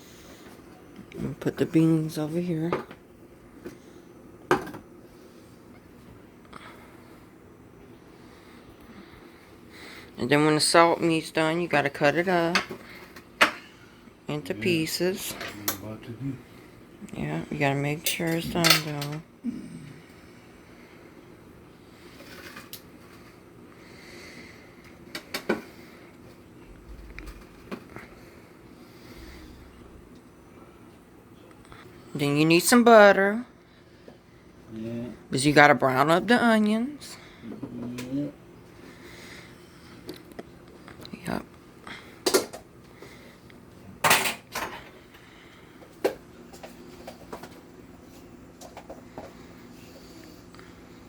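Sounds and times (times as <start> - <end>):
pots and pans clattering: 44.0 - 45.0.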